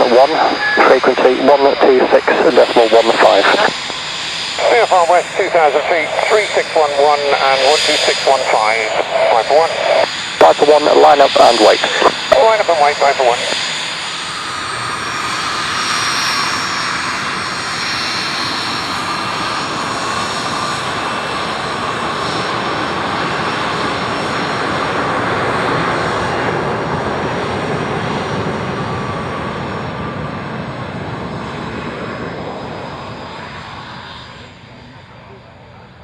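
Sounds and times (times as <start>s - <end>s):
high whining tones: 0.0s - 8.3s
aircraft engines rushing: 0.0s - 36.0s.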